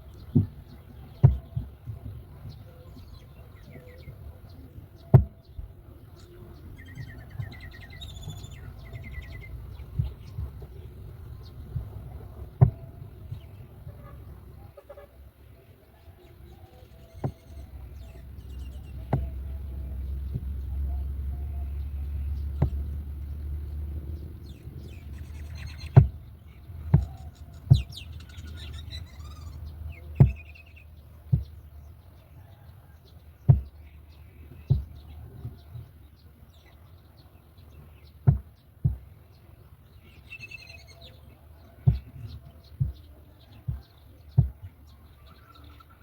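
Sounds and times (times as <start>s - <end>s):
short low thumps: 5.1s - 14.6s, 17.0s - 28.3s, 29.2s - 31.9s, 33.4s - 35.8s, 38.2s - 39.1s, 41.8s - 44.9s
high bird chirps: 6.2s - 11.6s, 16.6s - 22.8s, 24.4s - 31.6s, 40.0s - 41.2s.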